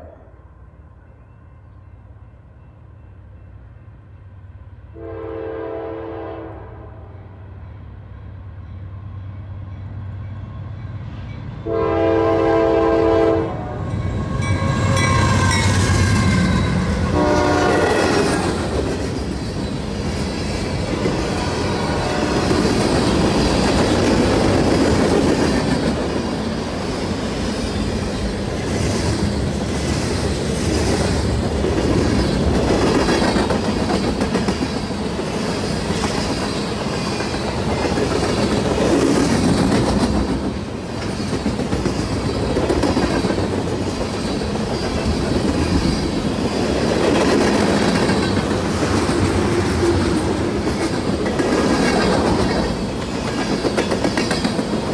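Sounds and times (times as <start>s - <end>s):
diesel locomotive engines rumbling: 0.0s - 54.9s
train air horn blasts: 4.9s - 7.4s, 11.6s - 15.2s, 17.0s - 18.3s, 21.2s - 22.7s
wheel and rail clatter: 22.4s - 54.9s.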